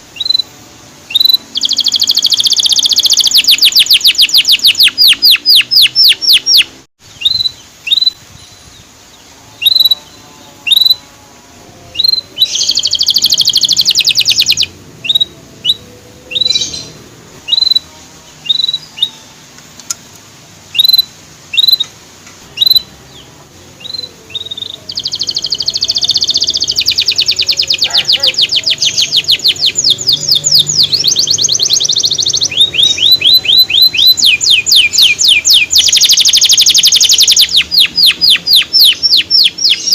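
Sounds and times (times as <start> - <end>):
canary chirping and trilling: 0.0 - 0.5, 1.1 - 8.8, 9.6 - 11.0, 11.8 - 19.4, 20.7 - 21.9, 22.5 - 39.9.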